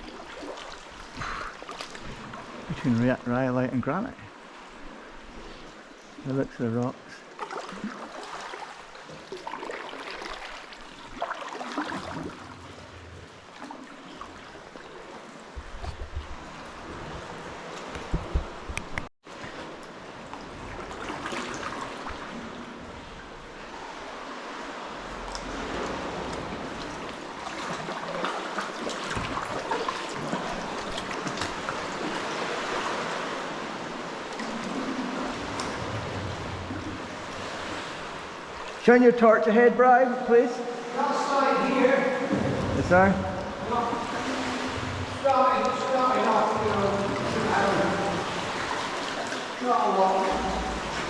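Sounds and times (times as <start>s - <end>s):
small splashes and drips: 0.0s - 3.0s, 6.8s - 18.2s, 23.7s - 38.9s, 43.4s - 51.0s
water lapping around kayak: 0.0s - 51.0s
low rumbles: 42.2s - 48.6s.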